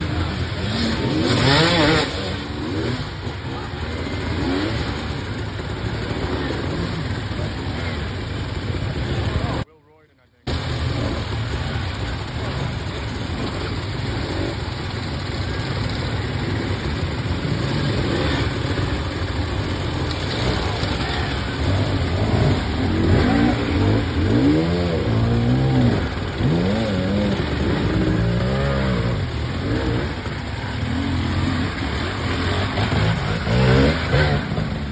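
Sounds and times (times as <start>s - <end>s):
dirt bike engine revving: 0.0s - 9.6s, 10.5s - 34.9s.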